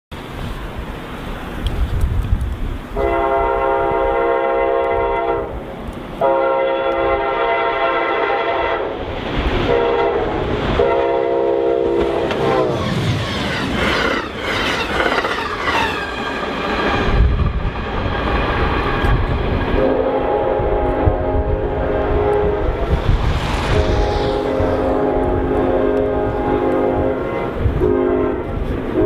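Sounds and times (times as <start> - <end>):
multi-tone horn blasts: 3.0 - 5.6, 6.2 - 9.0, 9.6 - 12.8, 19.8 - 29.0
steady low rumble: 17.1 - 27.9.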